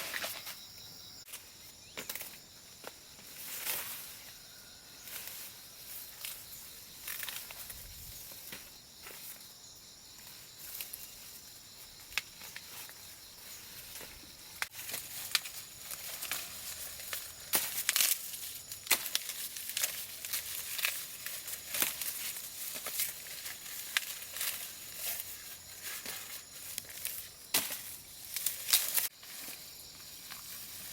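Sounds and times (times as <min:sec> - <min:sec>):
dry leaves rustling and crackling: 0:12.2 - 0:30.9.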